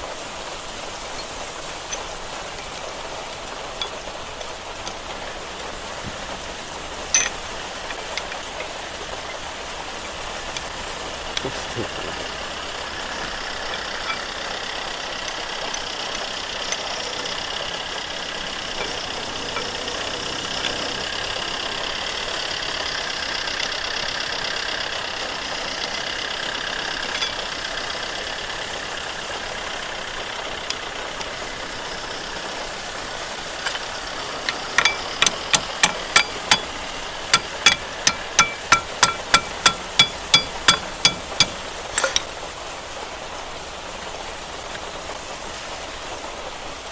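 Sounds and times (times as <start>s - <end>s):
steady mechanical hum: 0.0s - 46.9s
sharp metallic taps: 33.6s - 42.3s.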